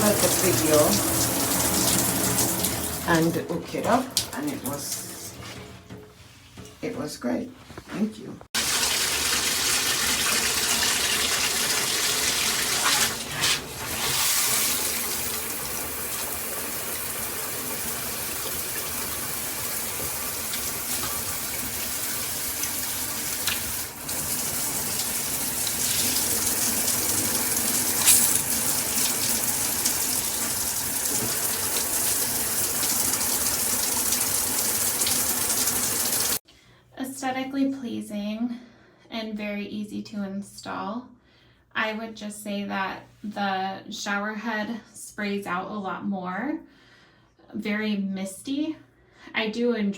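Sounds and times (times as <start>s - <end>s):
shower spraying water: 0.0s - 5.6s, 8.6s - 36.4s.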